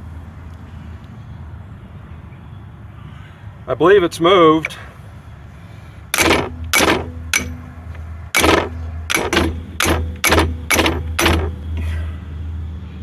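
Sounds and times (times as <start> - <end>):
hammer striking metal: 6.2 - 11.8
low steady hum: 6.2 - 12.0.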